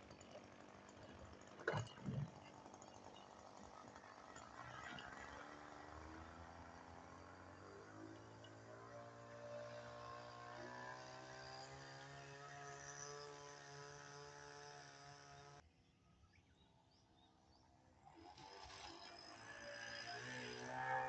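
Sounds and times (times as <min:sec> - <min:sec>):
model plane engine drone: 0:03.7 - 0:15.6, 0:18.1 - 0:21.0.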